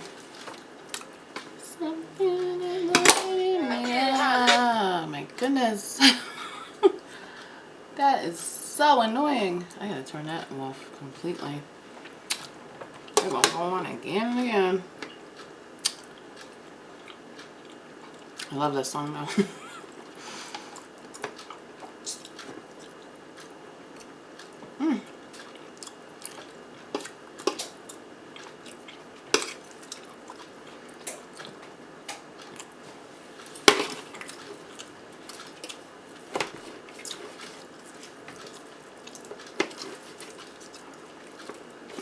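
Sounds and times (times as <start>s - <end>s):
soft chewing and mouth sounds: 0.0s - 2.7s, 10.7s - 13.2s, 14.9s - 18.6s, 19.7s - 42.0s.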